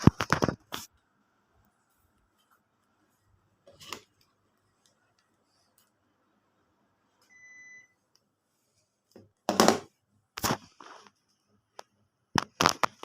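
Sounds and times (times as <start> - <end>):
air conditioner beep: 7.2 - 8.1.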